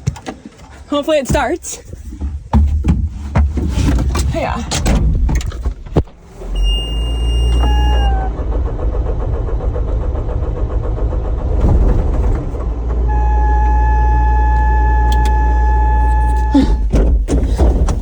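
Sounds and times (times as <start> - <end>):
low sagging tone: 6.2 - 16.9
skid steer engine running: 6.2 - 18.0
high electronic warning beep: 6.5 - 8.2, 13.1 - 16.8.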